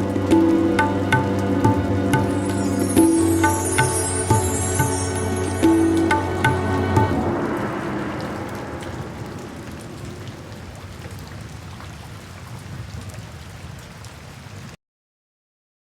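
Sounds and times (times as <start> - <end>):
background music: 0.0 - 9.3
steady rain falling: 0.0 - 14.8.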